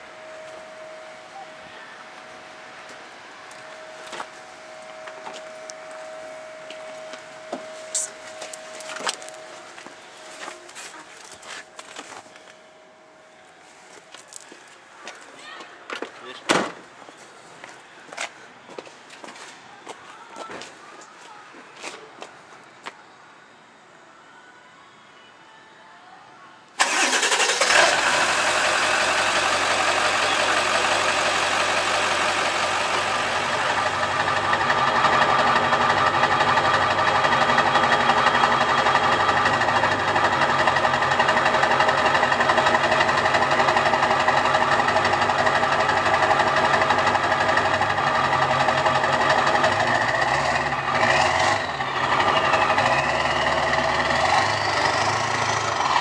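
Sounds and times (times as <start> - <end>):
diesel engine starting and idling: 26.8 - 56.0.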